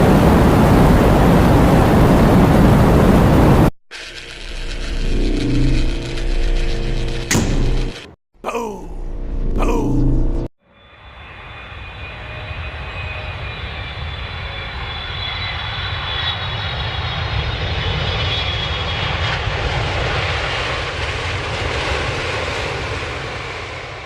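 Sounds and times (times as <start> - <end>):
engine drone with high whine: 0.0 - 8.1, 9.3 - 17.6.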